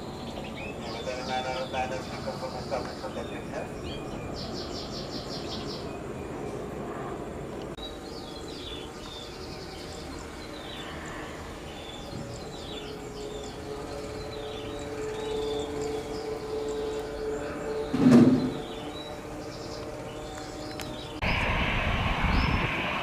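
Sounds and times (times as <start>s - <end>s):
small birds chirping: 0.0s - 6.8s, 7.6s - 21.5s
steady hum: 0.0s - 23.0s
low background rumble: 18.5s - 23.0s.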